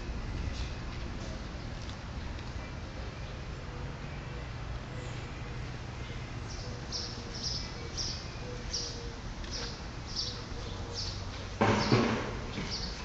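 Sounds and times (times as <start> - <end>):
bird chirping: 3.2 - 13.0.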